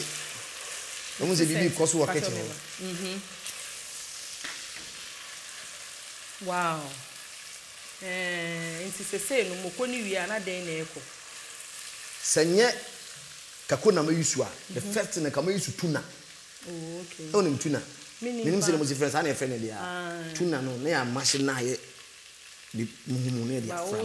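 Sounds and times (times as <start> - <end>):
sauce sizzling in oil: 0.0 - 24.0
person speaking: 1.2 - 3.2, 14.7 - 15.5, 16.7 - 21.4, 22.8 - 24.0.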